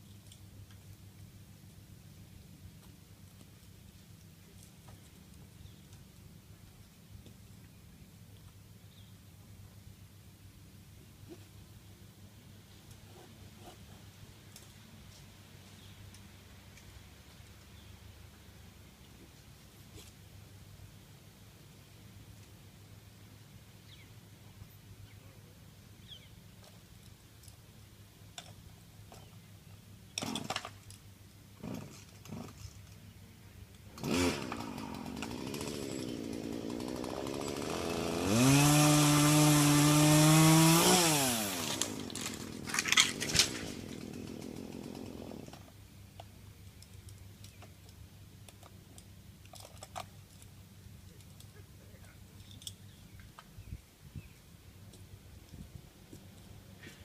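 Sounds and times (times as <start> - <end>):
chainsaw engine revving: 31.6 - 32.6, 33.9 - 45.6.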